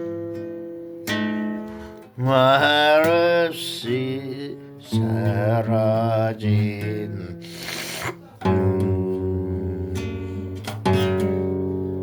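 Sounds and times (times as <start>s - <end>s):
acoustic guitar strumming: 0.0s - 12.0s
person singing: 2.2s - 11.2s.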